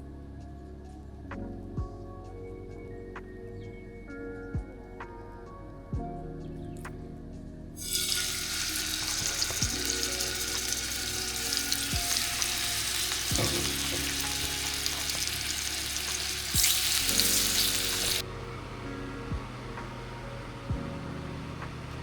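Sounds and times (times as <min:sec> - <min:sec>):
chicken sizzling in a pan: 0:07.8 - 0:18.2.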